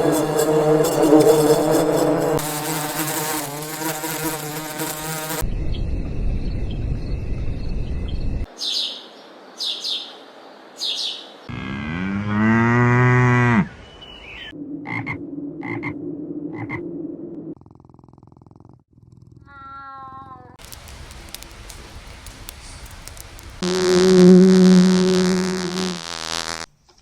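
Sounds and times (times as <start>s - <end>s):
insect buzzing: 0.0s - 5.5s, 20.6s - 26.7s
bird chirps: 5.5s - 10.2s, 10.8s - 11.4s, 13.7s - 14.6s
cow mooing: 11.5s - 13.7s
low hum: 14.5s - 17.6s
frog croaking: 14.8s - 16.8s.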